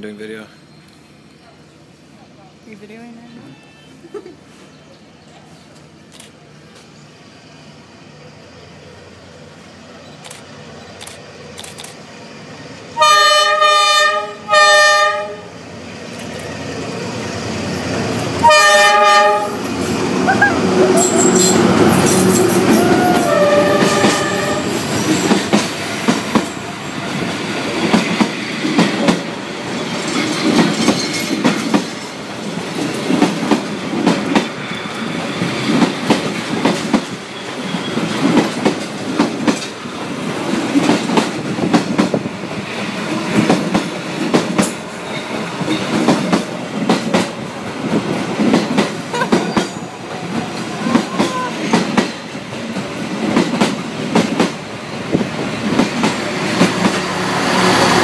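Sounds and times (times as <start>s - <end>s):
train coaches rumbling past: 0.0s - 58.0s
wheels clacking over rail joints: 20.9s - 42.2s.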